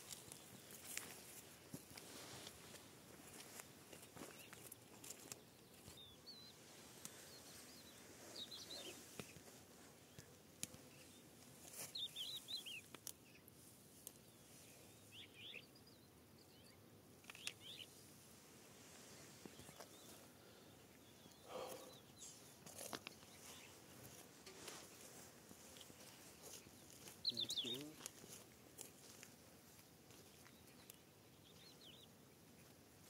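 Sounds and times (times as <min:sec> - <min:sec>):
faint bird chirps: 0:04.0 - 0:09.4, 0:10.0 - 0:13.5, 0:14.2 - 0:18.0, 0:19.0 - 0:23.8, 0:25.7 - 0:28.1.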